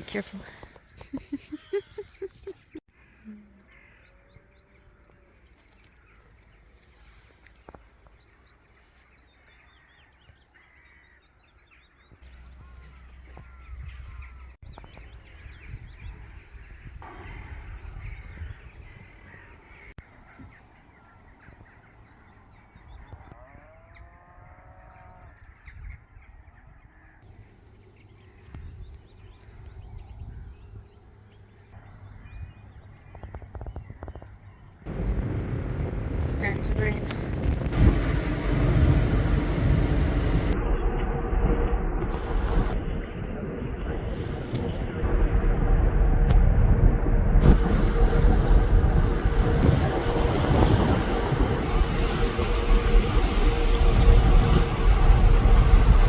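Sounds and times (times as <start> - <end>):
birds calling: 0.0 - 24.1
low rumble: 12.2 - 20.0, 31.8 - 56.0.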